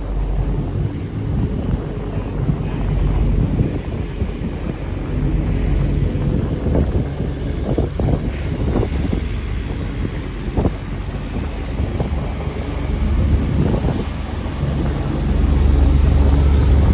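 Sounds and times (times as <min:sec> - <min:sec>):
boat engine rumble: 0:00.0 - 0:16.9
water: 0:00.0 - 0:16.9
wind buffeting microphone: 0:00.0 - 0:16.9.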